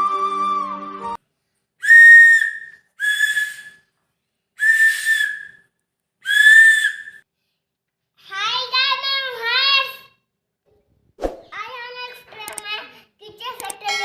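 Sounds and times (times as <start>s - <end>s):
shrill whistle blasts: 1.8s - 3.9s, 4.6s - 7.2s.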